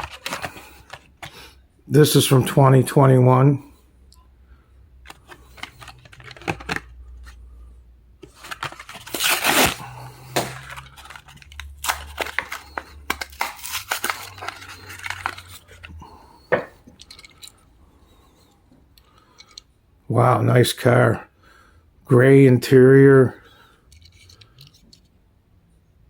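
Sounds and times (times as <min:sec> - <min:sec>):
blister package tearing and crinkling: 0:00.0 - 0:01.3, 0:05.1 - 0:07.0, 0:08.2 - 0:15.9.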